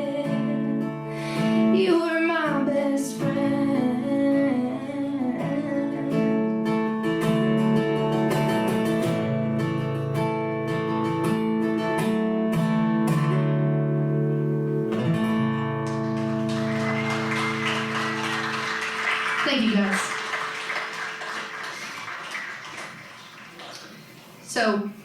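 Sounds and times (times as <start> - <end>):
acoustic guitar strumming chords: 0.0 - 19.2.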